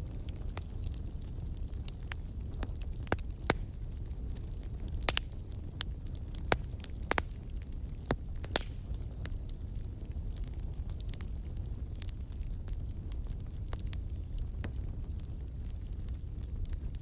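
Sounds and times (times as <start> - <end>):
fire crackling in fireplace: 0.0 - 17.0
low rumble of flames: 0.0 - 17.0
sharp pops and snaps: 5.0 - 5.3, 6.5 - 7.4, 8.0 - 9.0.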